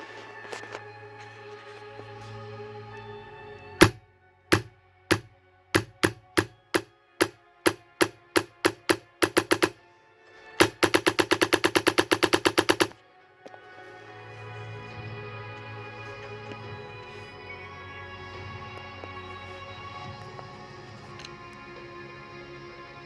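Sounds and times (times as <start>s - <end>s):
airsoft gun shots: 4.6s - 9.8s, 10.6s - 12.9s
airsoft gun full-auto burst: 7.7s - 9.8s, 10.6s - 12.9s.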